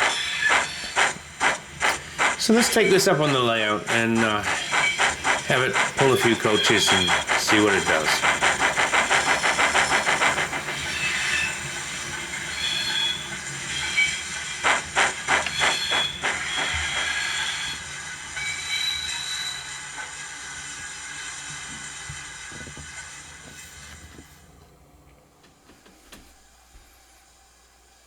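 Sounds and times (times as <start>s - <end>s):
high squeals: 0.0s - 22.0s
steam hiss: 0.0s - 24.5s
steam locomotive chuffs: 0.0s - 24.9s.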